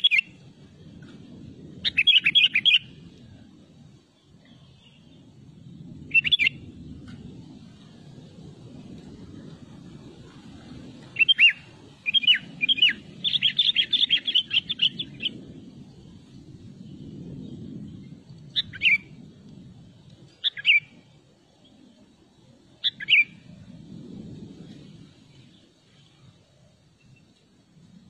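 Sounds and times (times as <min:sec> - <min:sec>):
bird calling: 0:00.0 - 0:00.3, 0:01.8 - 0:02.9, 0:06.1 - 0:06.6, 0:11.1 - 0:15.4, 0:20.4 - 0:21.0, 0:22.8 - 0:23.4
low wind rumble: 0:00.0 - 0:28.0.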